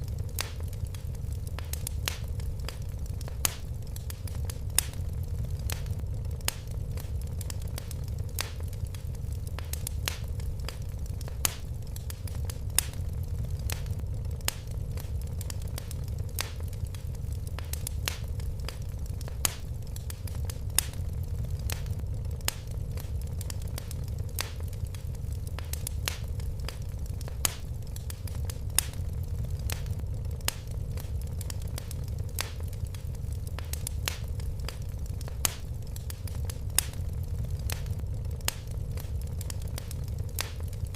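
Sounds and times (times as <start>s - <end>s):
fire crackling and popping: 0.0s - 40.9s
low rumble: 4.4s - 8.3s, 12.4s - 16.3s, 25.2s - 40.3s.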